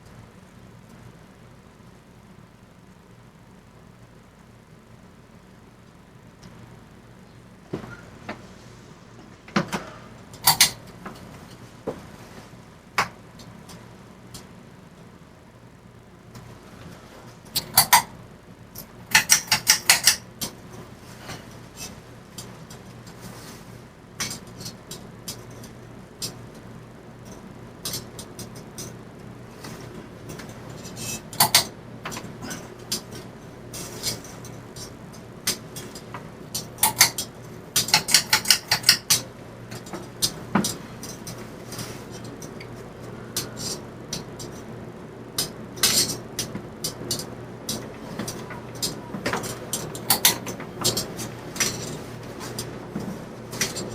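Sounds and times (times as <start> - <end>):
ceiling fan humming: 0.0 - 53.9
sharp clicks and knocks: 18.8 - 20.6, 29.6 - 44.7.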